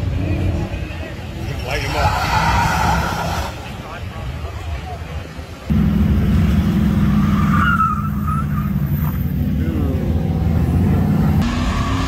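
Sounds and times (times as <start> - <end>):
tire squeal: 1.5 - 3.8, 7.1 - 9.3
car engine at high revs: 8.6 - 12.0.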